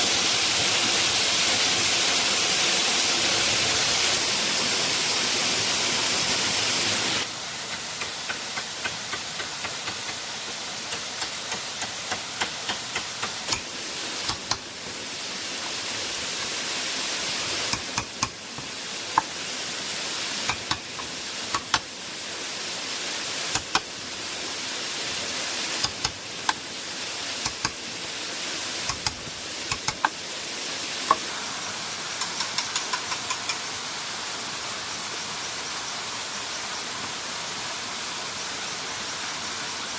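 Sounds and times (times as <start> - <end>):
rushing water: 0.0 - 39.9
sharp knocks and taps: 7.7 - 10.2, 10.9 - 13.6, 17.7 - 19.3, 28.9 - 30.2, 32.2 - 33.6.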